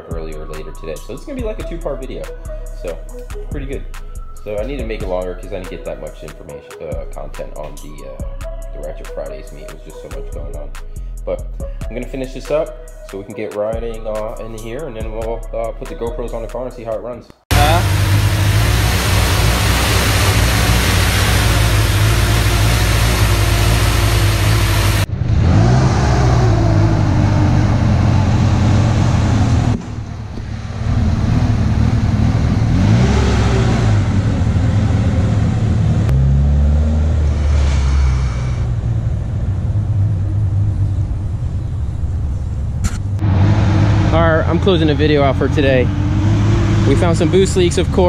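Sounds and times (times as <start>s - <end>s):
car engine idling: 17.5s - 25.1s, 38.1s - 48.0s
car engine revving: 17.5s - 48.0s.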